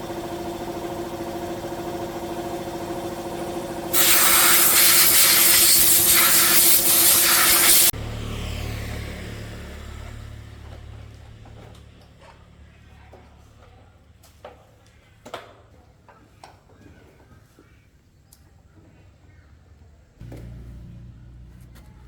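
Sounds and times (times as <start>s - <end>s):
loud spraying hiss: 3.9s - 7.9s.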